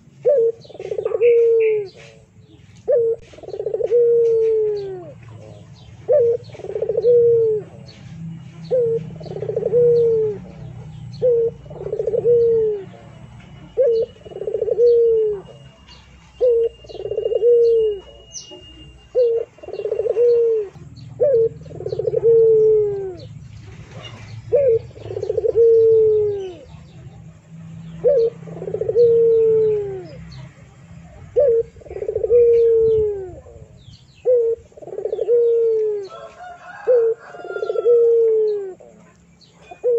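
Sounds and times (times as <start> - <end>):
dove cooing: 0.0 - 39.9
small birds chirping: 0.0 - 39.9.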